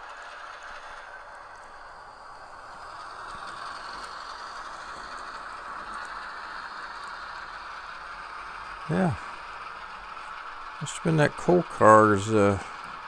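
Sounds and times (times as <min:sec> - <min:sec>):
model train motor whine: 0:00.0 - 0:13.0
wheels clicking over track joints: 0:00.1 - 0:07.7.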